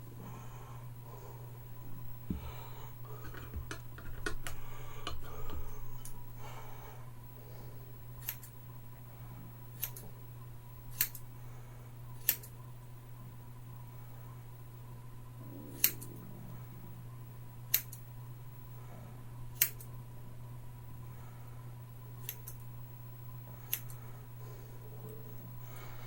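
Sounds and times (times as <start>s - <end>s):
scissors snipping hair: 8.2s - 8.5s, 9.8s - 10.0s, 10.9s - 11.2s, 12.2s - 12.6s, 15.7s - 16.1s, 17.7s - 18.0s, 19.6s - 19.9s, 22.2s - 22.6s.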